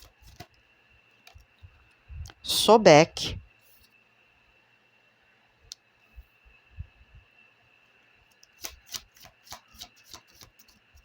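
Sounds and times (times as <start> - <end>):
cards shuffling with sharp clicks: 8.5 - 10.7.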